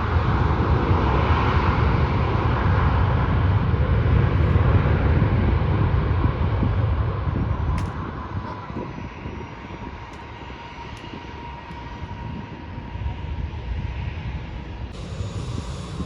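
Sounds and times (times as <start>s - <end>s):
airliner engines rumbling and whining: 0.0s - 16.0s.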